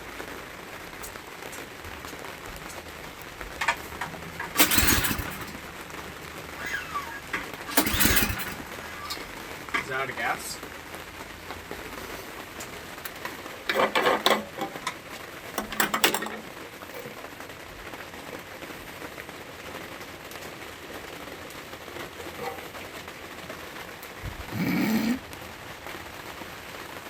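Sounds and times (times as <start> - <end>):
rain on hard surfaces: 0.0 - 27.0
mechanical rattling: 3.6 - 10.0, 13.7 - 15.0, 15.6 - 16.5.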